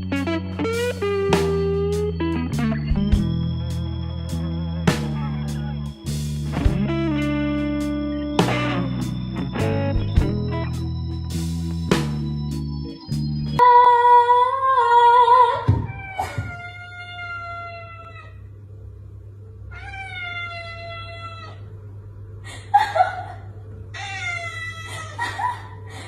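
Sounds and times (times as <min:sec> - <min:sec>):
cat meowing: 0:15.9 - 0:18.4, 0:19.7 - 0:21.6, 0:24.0 - 0:24.9.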